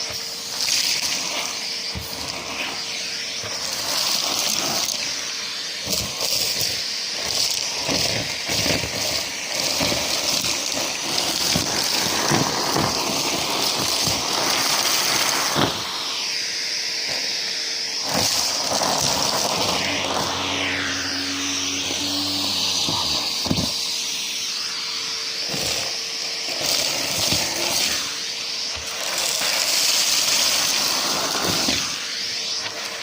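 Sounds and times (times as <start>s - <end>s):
debris rattling up hose: 0.0s - 2.5s, 3.4s - 5.2s, 5.8s - 15.8s, 18.1s - 19.9s, 25.5s - 31.9s
vacuum cleaner running: 0.0s - 33.0s
steady low hum: 19.2s - 25.0s.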